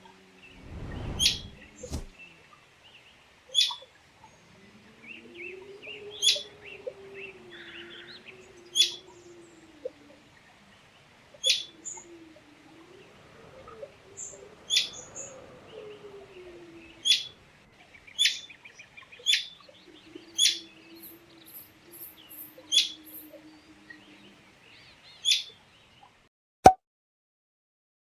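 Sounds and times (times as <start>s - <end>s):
soft chirping and twittering: 0.5s - 2.1s.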